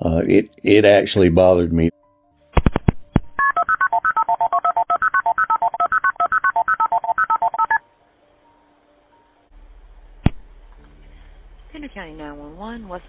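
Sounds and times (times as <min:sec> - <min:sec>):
phone line noise: 0:03.4 - 0:07.8
touch-tone keypad beeps: 0:03.4 - 0:07.8.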